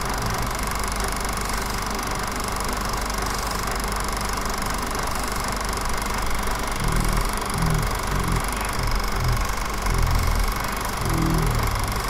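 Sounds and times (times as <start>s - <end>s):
constant hiss: 6.8s - 12.0s.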